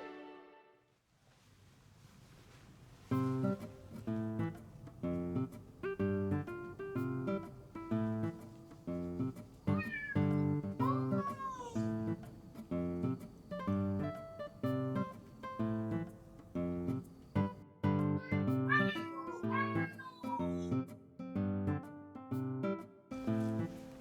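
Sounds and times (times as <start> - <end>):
plucked guitar music: 3.1 - 24.0
cat meowing: 9.6 - 12.4.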